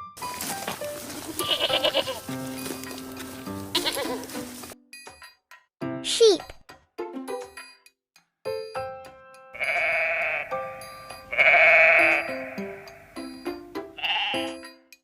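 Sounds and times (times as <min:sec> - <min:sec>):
plinking children's music: 0:00.0 - 0:15.0
sheep bleating: 0:01.2 - 0:02.3, 0:03.7 - 0:04.4, 0:09.6 - 0:13.2, 0:14.0 - 0:14.6.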